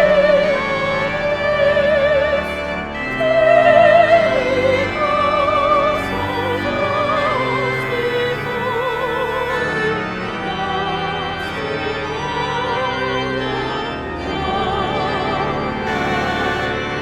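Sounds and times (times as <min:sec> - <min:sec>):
person singing with vibrato: 0:00.0 - 0:10.0, 0:14.4 - 0:17.0
organ: 0:00.0 - 0:17.0.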